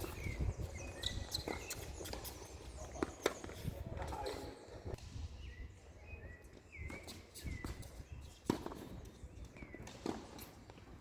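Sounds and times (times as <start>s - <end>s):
shoe squeaks: 0.0s - 4.7s.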